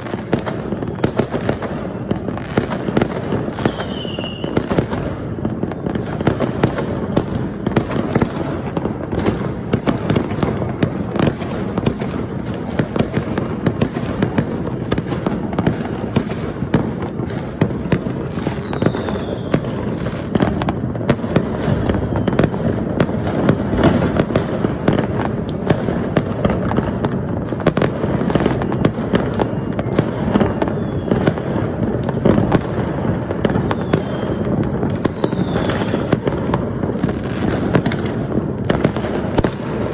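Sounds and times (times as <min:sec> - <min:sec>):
fireworks and firecrackers banging: 0:00.0 - 0:39.9
rocket whistle: 0:03.4 - 0:04.7, 0:18.4 - 0:19.8, 0:28.7 - 0:31.4, 0:33.7 - 0:36.1.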